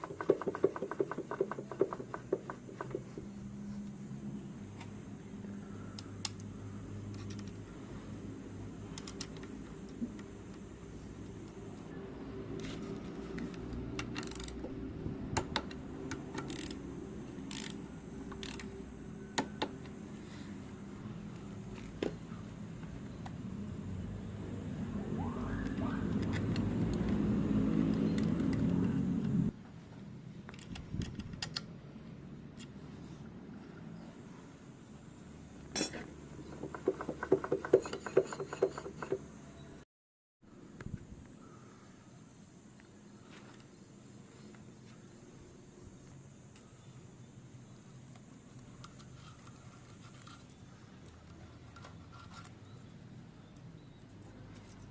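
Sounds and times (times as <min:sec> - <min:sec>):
ratchet wrench clicking: 0:14.0 - 0:14.7, 0:15.5 - 0:16.8, 0:17.4 - 0:18.7
metal tools clinking: 0:35.7 - 0:36.1.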